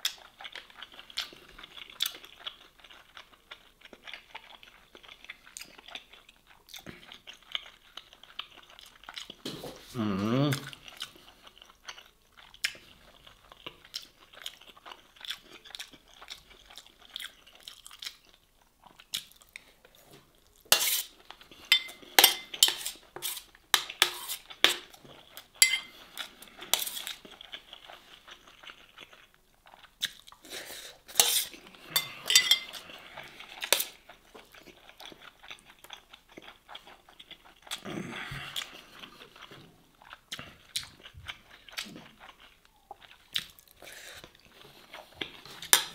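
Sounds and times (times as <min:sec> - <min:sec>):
chewing and crunching: 0:00.0 - 0:45.9
spoon clinking on steel tray: 0:21.7 - 0:22.8, 0:25.6 - 0:25.9, 0:32.0 - 0:32.8.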